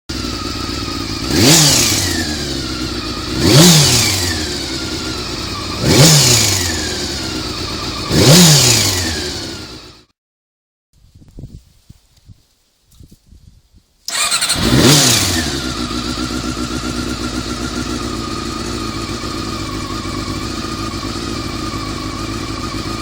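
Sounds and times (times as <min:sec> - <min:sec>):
motorcycle engine idling and revving: 0:00.1 - 0:10.1, 0:14.1 - 0:23.0.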